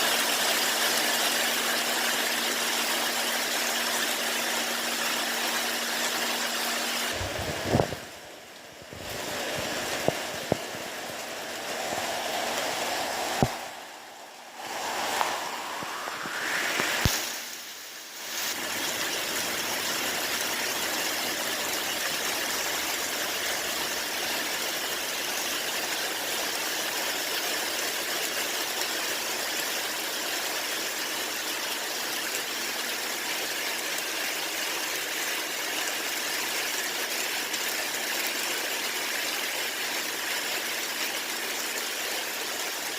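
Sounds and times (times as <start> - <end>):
steady rain hiss: 0.0 - 42.9
short rising tone: 9.9 - 17.7.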